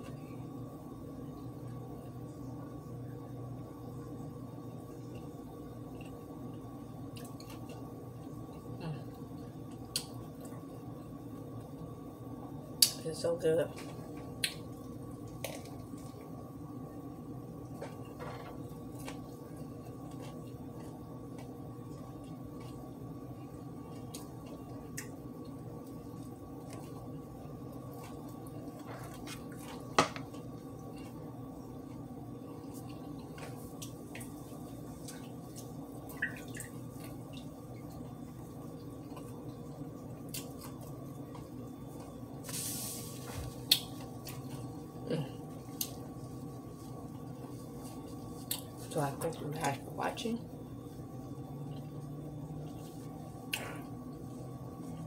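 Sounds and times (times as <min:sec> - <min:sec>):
low background hum: 0:00.0 - 0:55.0
chewing with wet mouth clicks: 0:05.0 - 0:08.7, 0:23.4 - 0:27.0, 0:40.2 - 0:42.2, 0:43.6 - 0:44.6, 0:48.4 - 0:48.8.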